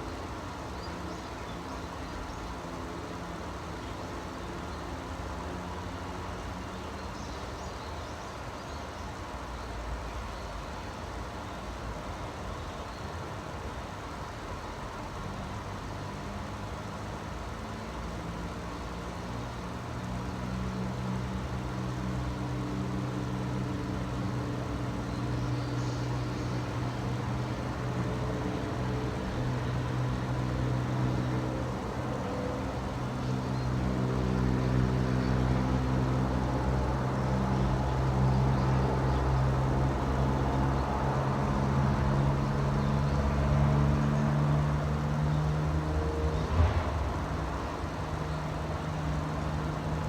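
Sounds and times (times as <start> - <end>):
low engine hum: 0.0 - 50.0.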